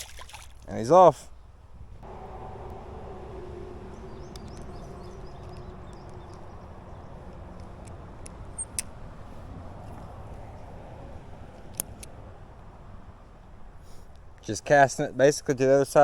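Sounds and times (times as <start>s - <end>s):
low rumble: 2.0s - 11.2s
faint hum: 2.0s - 13.2s
light clicks: 2.1s - 12.2s.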